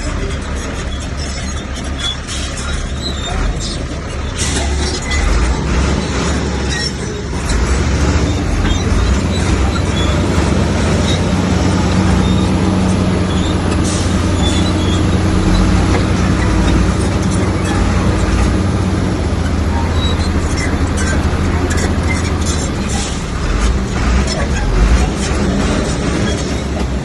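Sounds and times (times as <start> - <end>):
bulldozer diesel engine running: 0.0 - 27.0.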